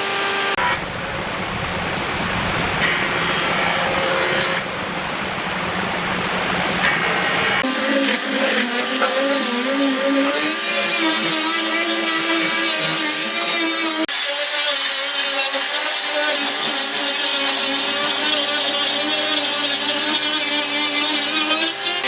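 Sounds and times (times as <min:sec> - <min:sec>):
power tool motor running: 0:07.6 - 0:22.0.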